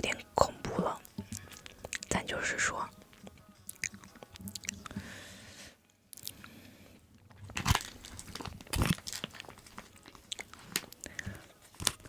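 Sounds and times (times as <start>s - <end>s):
biting and chewing: 1.0s - 2.2s, 3.0s - 5.1s, 6.1s - 6.6s, 7.2s - 12.0s.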